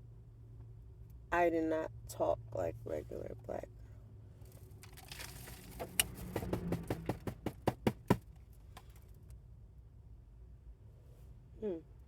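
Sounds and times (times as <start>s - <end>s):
low steady hum: 0.0s - 6.1s.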